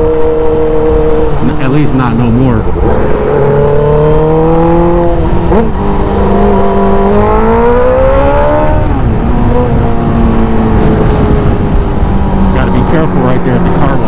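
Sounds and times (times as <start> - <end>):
motorcycle engine revving: 0.0 - 14.0
wind rushing over microphone: 0.0 - 14.0.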